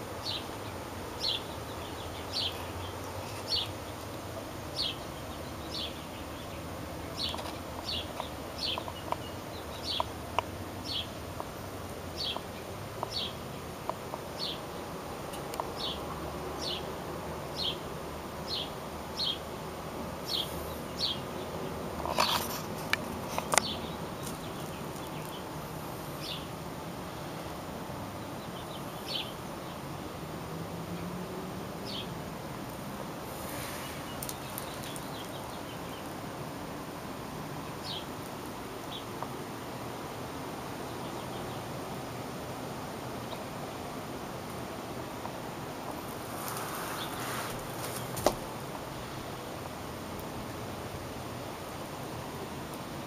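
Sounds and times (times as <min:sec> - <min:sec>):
small bird chirping: 0:00.2 - 0:04.1, 0:04.7 - 0:10.2, 0:12.2 - 0:13.7, 0:20.2 - 0:22.6, 0:23.3 - 0:26.5, 0:28.2 - 0:29.8, 0:33.5 - 0:36.1.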